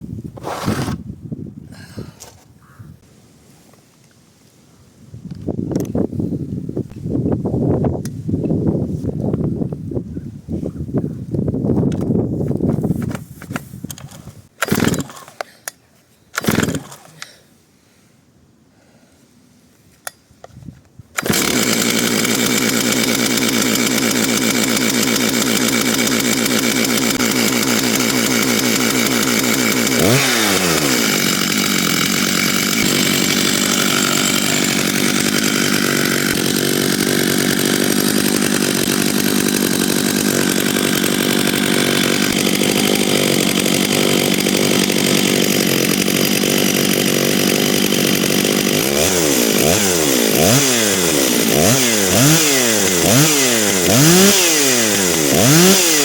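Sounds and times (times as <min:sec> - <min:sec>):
chainsaw revving: 0:14.6 - 0:15.4, 0:16.4 - 0:17.3, 0:21.2 - 0:56.0.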